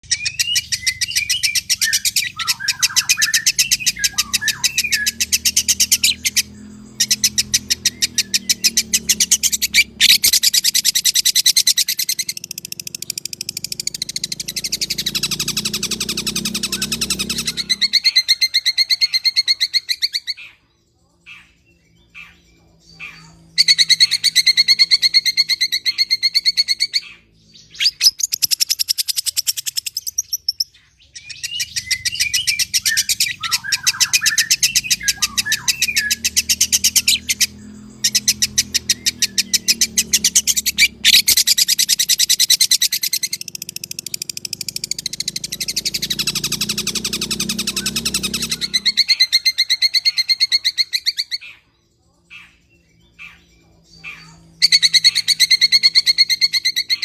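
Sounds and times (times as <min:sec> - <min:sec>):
bird gliding whistles: 0:00.0 - 0:12.6, 0:31.3 - 0:51.4
bird harsh chattering song: 0:00.0 - 0:57.0.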